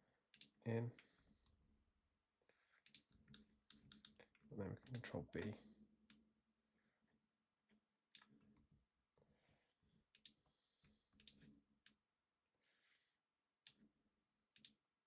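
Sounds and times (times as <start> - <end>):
computer mouse clicks: 0.3 - 0.6, 2.8 - 5.5, 10.1 - 10.4, 11.1 - 12.0, 14.5 - 14.8.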